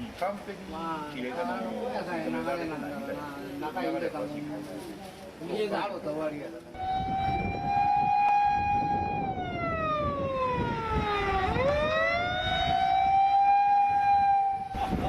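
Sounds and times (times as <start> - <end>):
motor-driven siren wailing: 6.8 - 14.8.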